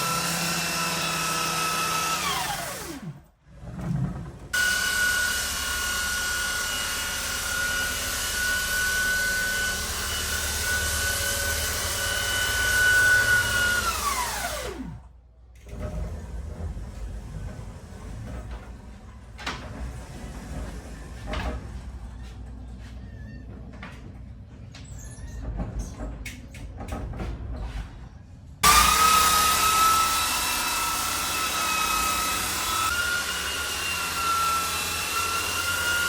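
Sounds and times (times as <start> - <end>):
electric sander whining: 0.0 - 3.2, 28.6 - 36.0.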